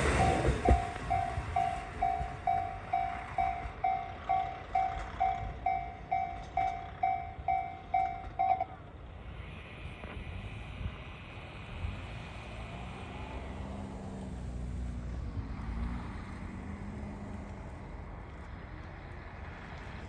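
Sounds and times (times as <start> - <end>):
level-crossing alarm ringing: 0.0 - 8.8.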